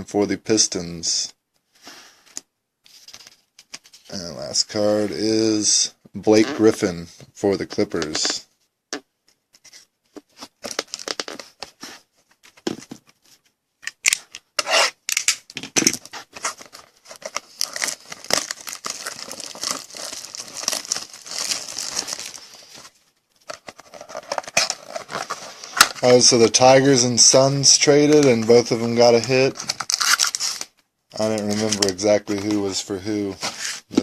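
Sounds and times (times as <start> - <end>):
cards rustling: 9.3 - 34.0
packaging tearing and crinkling: 10.7 - 11.6, 14.0 - 22.8, 23.4 - 26.4, 28.1 - 32.0.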